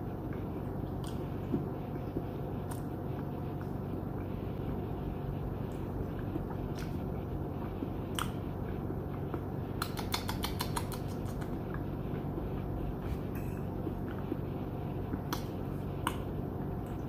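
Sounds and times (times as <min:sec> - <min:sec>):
steady low hum: 0:00.0 - 0:17.0
chewing with wet mouth clicks: 0:00.3 - 0:04.3, 0:05.7 - 0:07.0, 0:07.6 - 0:08.4, 0:09.1 - 0:11.9, 0:15.1 - 0:17.0.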